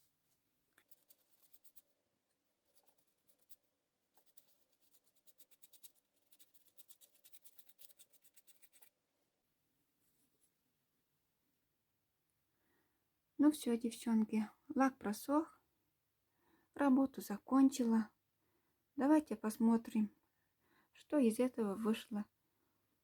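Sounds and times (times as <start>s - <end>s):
paintbrush strokes: 0.8s - 9.0s.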